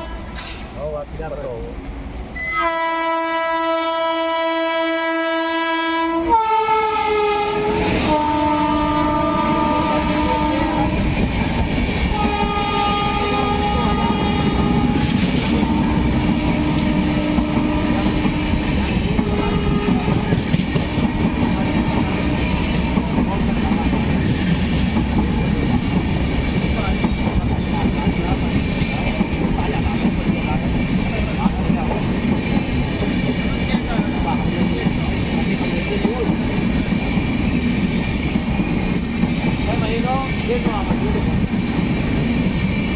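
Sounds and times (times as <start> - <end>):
train horn blast: 0.0 - 0.6, 2.4 - 11.1, 12.1 - 23.2
train rumble and clickety-clack: 0.0 - 42.9.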